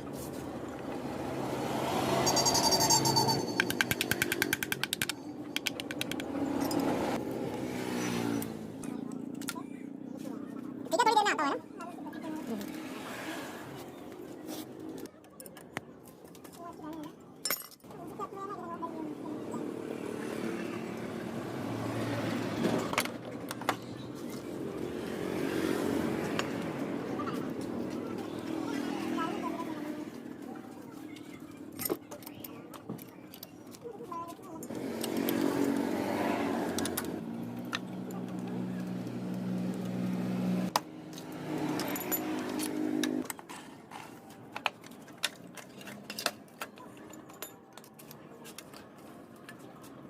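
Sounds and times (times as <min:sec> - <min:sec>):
metallic clinks of tools: 0:41.6 - 0:43.2.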